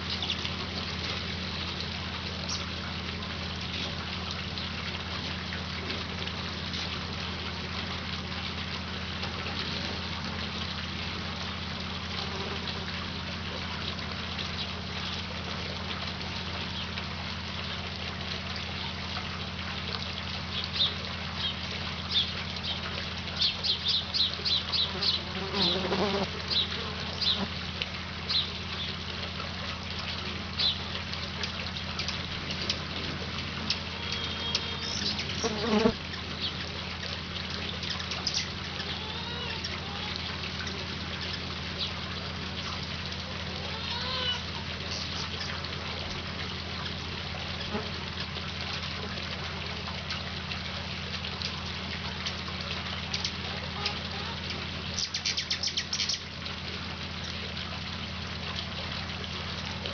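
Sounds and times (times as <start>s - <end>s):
hummingbird chip calls: 23.4s - 27.5s, 33.7s - 36.6s, 55.0s - 56.3s.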